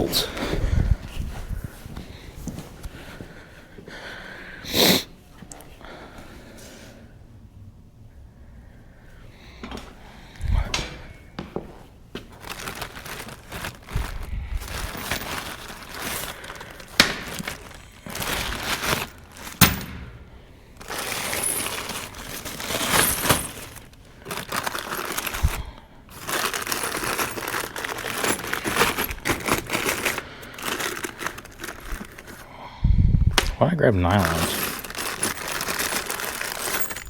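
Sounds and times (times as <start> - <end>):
rustling and scraping: 11.4 - 32.5, 34.1 - 37.0
metal parts clinking and rattling: 12.4 - 32.4, 34.1 - 37.0.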